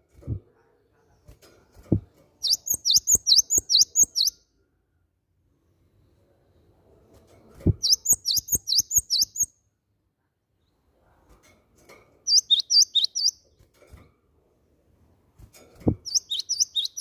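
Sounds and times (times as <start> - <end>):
bird singing high whistled notes: 2.4 - 4.4, 7.8 - 9.5, 12.3 - 13.4, 16.1 - 17.0.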